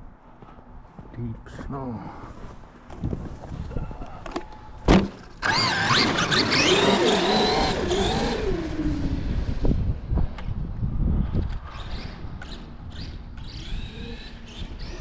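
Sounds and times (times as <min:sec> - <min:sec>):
electric motor whining: 0:05.4 - 0:09.5.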